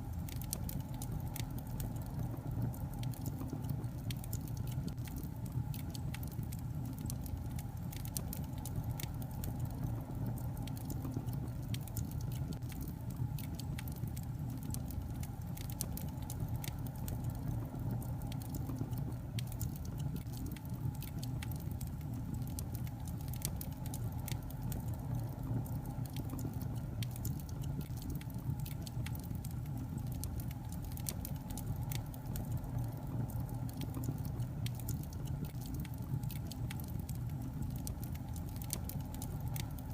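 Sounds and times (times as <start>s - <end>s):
logs crackling and popping: 0.0s - 39.9s
low rumble of flames: 0.0s - 39.9s.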